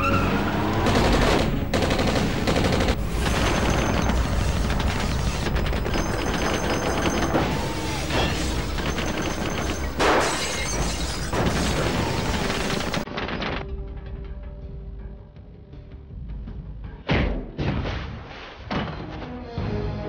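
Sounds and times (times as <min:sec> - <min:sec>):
automatic rifle fire: 0:00.7 - 0:13.1
glass shattering: 0:03.2 - 0:13.0.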